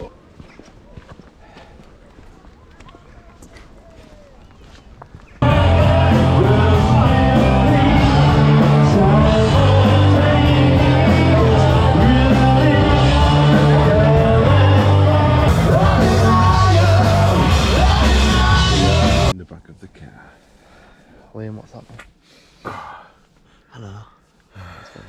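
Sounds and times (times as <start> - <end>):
loud rock music with singing: 5.4 - 19.3.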